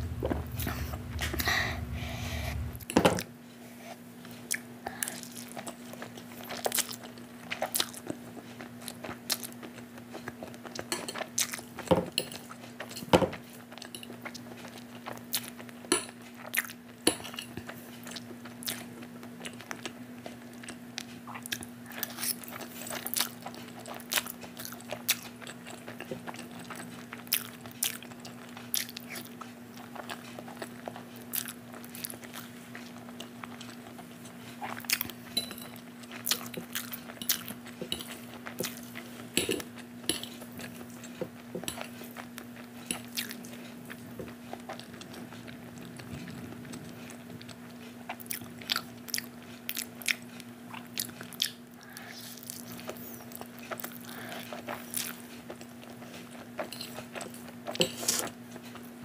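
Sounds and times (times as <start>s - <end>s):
low hum: 0.0s - 2.9s
wet chewing: 4.4s - 58.9s.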